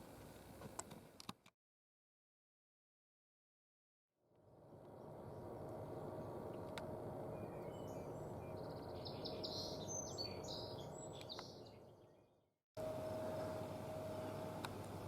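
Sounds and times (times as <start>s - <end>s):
faint outdoor background noise: 0.0s - 1.5s, 4.3s - 15.0s
songbird chirping: 4.8s - 15.0s.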